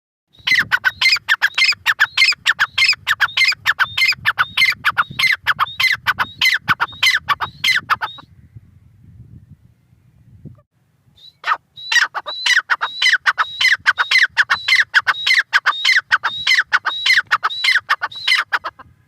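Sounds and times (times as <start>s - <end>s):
francolin calling harshly: 0.3s - 8.3s, 11.2s - 18.8s.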